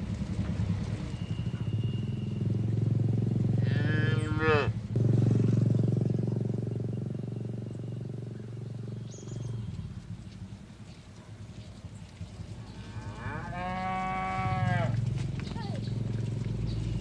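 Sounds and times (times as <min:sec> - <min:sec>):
cattle mooing: 0:03.4 - 0:04.8, 0:12.6 - 0:15.8.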